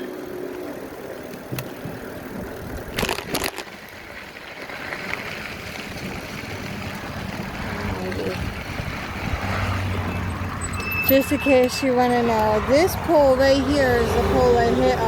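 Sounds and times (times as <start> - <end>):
bike tyres rolling: 0.0 - 15.0
wind on microphone: 5.6 - 15.0.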